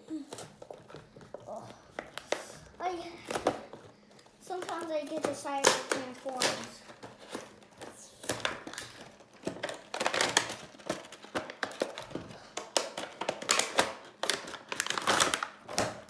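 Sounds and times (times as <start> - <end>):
packaging crinkling and clicking: 0.2 - 16.0.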